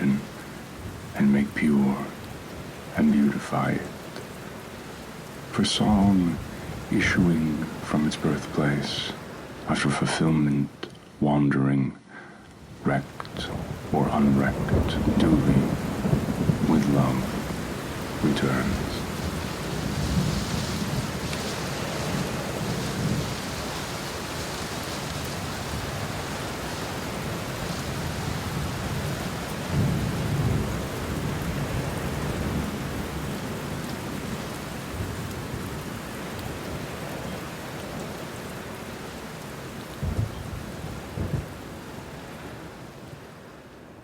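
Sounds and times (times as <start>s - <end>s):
rain falling: 0.0s - 11.4s, 12.2s - 44.0s
rolling thunder: 13.4s - 35.8s, 40.0s - 41.6s.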